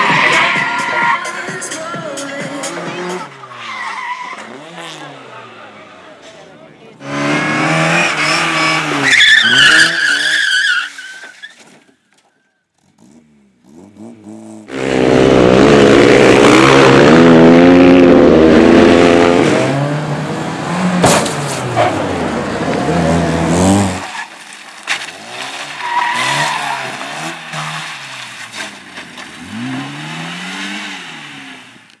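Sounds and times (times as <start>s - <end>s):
cars passing by: 0.0s - 10.3s, 13.0s - 32.0s
racing car engines revving: 0.0s - 10.6s, 12.8s - 24.1s, 25.0s - 32.0s
tyre squeal: 8.0s - 12.0s, 25.2s - 29.3s.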